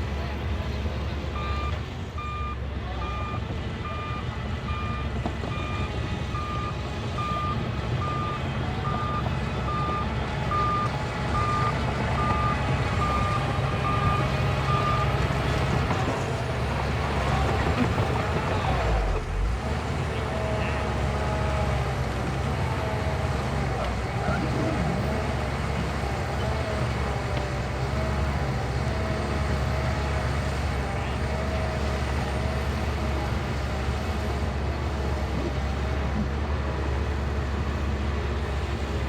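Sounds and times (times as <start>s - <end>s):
bulldozer diesel engine running: 0.0s - 39.0s
reversing alarm beeping: 1.4s - 15.3s.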